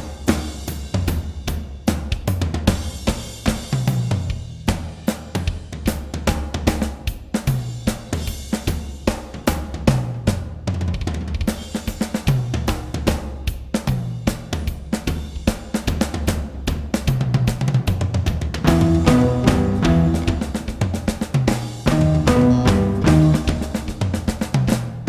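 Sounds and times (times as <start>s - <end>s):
drum kit playing fast groove: 0.0s - 25.0s
low bass line: 18.7s - 21.1s, 21.9s - 24.4s.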